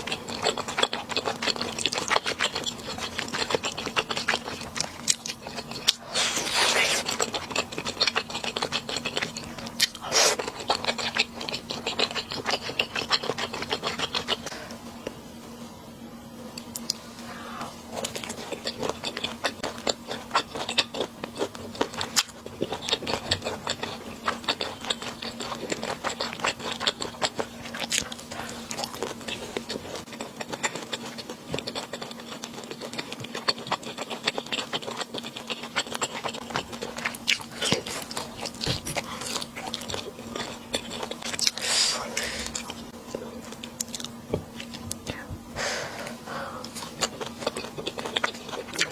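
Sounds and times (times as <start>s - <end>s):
close-miked chewing and biting: 0.0s - 14.8s, 17.9s - 45.2s, 46.6s - 48.9s
steady low hum: 0.0s - 48.9s
slurping: 5.4s - 9.2s.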